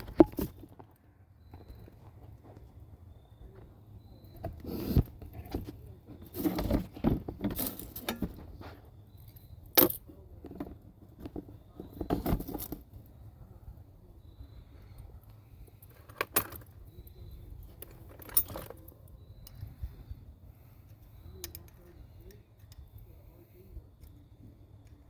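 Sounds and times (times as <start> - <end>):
metal tools clinking and knocking: 6.2 - 13.0, 15.8 - 19.7, 21.3 - 23.0.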